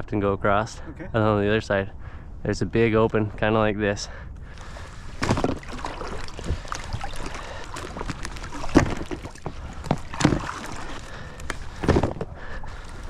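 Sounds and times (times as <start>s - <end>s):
steady outdoor hiss: 0.0s - 7.9s.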